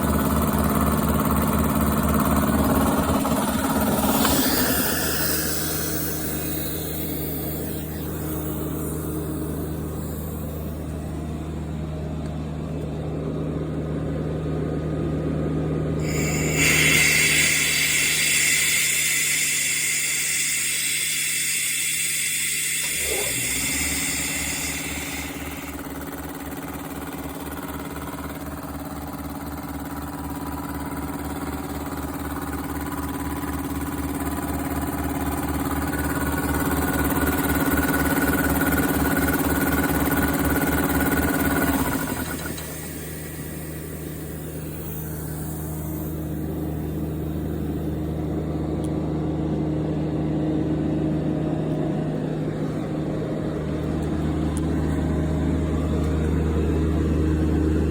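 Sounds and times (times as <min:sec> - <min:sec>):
compressor pump pulsing: 0:00.0 - 0:57.9
steady hum: 0:02.4 - 0:57.9
air hissing: 0:03.1 - 0:10.9, 0:16.0 - 0:26.4, 0:40.3 - 0:47.6.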